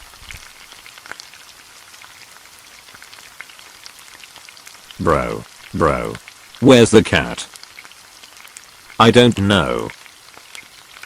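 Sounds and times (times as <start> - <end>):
light rain pattering: 0.0 - 11.0
small drips and ticks: 0.0 - 11.0
person speaking: 5.0 - 7.5, 9.0 - 9.9.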